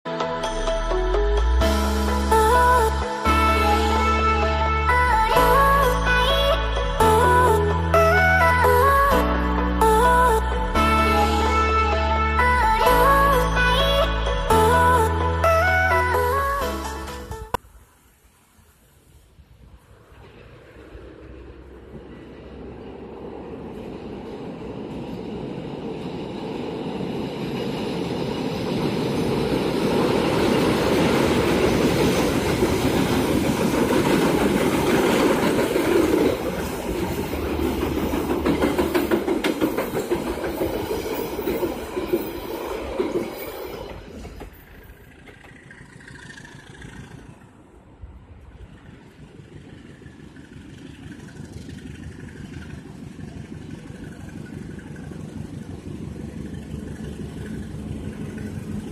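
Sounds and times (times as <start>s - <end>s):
train rumbling across steel bridge: 0.2s - 58.9s
distant engine drone: 19.9s - 39.7s, 43.9s - 58.9s
coach wheels clattering over rail joints: 20.1s - 58.9s.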